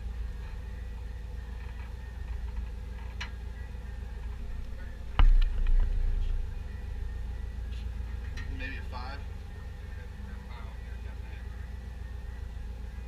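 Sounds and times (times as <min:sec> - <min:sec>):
steady low rumble: 0:00.0 - 0:13.0
loud thump: 0:05.2 - 0:06.4.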